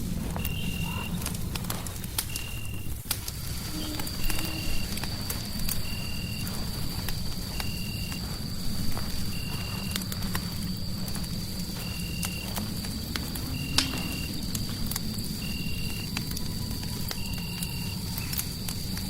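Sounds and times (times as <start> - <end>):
fireplace crackling: 0.0 - 19.0
steady high whistle: 0.3 - 1.2, 3.7 - 6.5, 15.4 - 19.0.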